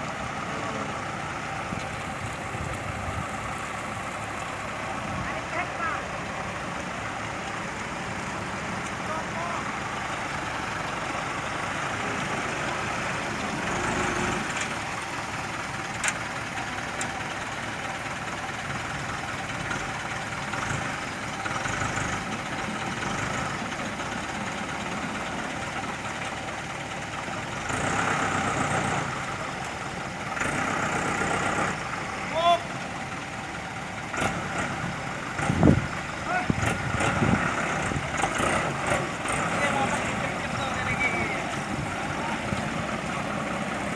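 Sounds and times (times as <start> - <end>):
heavy truck engine running: 0.0 - 43.9.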